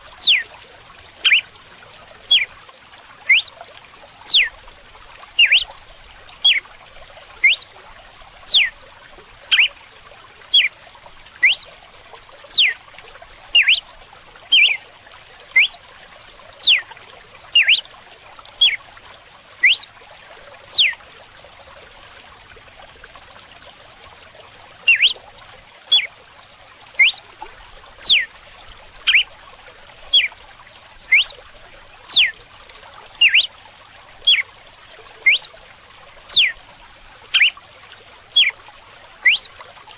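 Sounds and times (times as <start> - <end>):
faint running water trickling: 0.0 - 39.9
bird singing sharp sweeping notes: 0.2 - 0.4, 3.3 - 3.5, 5.4 - 5.6, 7.4 - 7.6, 8.5 - 8.7, 11.4 - 11.7, 12.5 - 12.8, 13.6 - 13.8, 15.6 - 15.8, 16.6 - 16.8, 17.6 - 17.8, 19.6 - 19.9, 20.7 - 20.9, 24.9 - 25.2, 27.0 - 27.2, 28.0 - 28.2, 31.1 - 31.3, 32.1 - 32.3, 33.2 - 33.5, 35.3 - 35.5, 36.3 - 36.5, 39.2 - 39.5.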